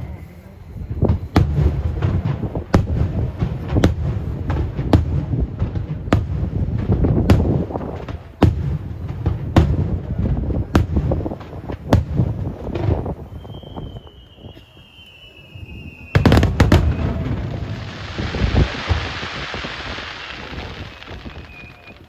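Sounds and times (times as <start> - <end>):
firework shells bursting: 13.6 - 22.0
low rumble and crackle: 15.7 - 22.0.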